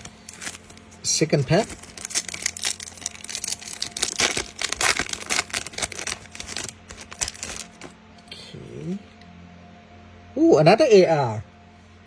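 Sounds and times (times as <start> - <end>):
foil pack tearing and crinkling: 0.0 - 8.0.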